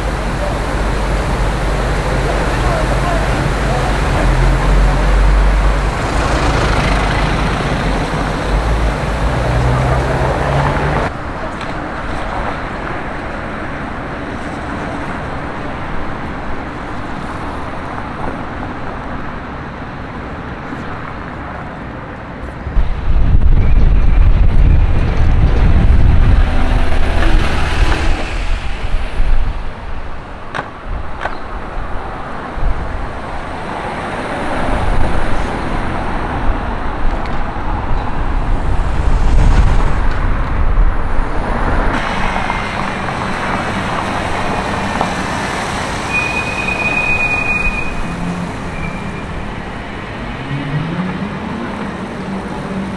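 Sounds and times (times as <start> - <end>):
vehicle passing close: 0.0 - 11.1, 24.2 - 30.2, 33.8 - 46.5
city street traffic: 0.0 - 52.9.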